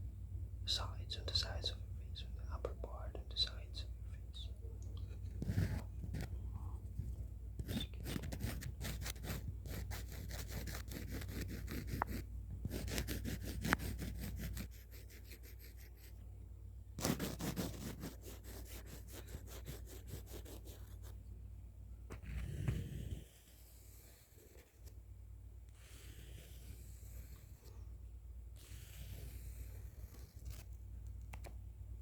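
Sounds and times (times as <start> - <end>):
pencil sketching strokes: 5.3 - 6.4, 7.6 - 16.2, 17.0 - 21.2, 22.1 - 24.9, 25.7 - 27.8, 28.5 - 30.7.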